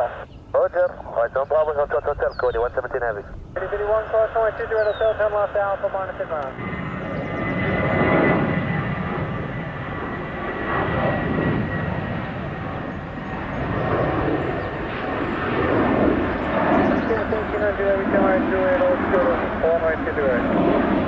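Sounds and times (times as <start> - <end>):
jet engines rushing: 0.0 - 21.0.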